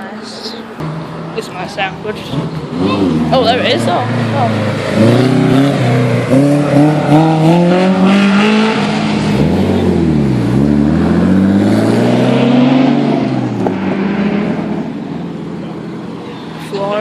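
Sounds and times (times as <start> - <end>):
car engine accelerating hard: 0.8 - 17.0.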